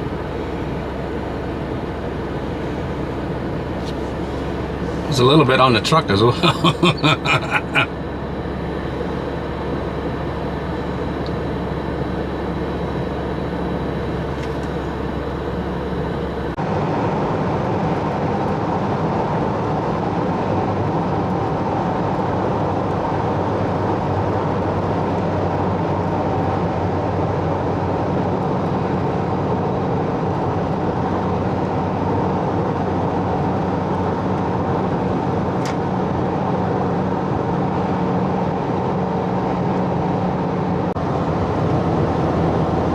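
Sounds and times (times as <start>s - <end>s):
road noise: 0.0s - 16.6s, 41.0s - 42.9s
vehicle engine: 0.0s - 16.6s, 41.0s - 42.9s.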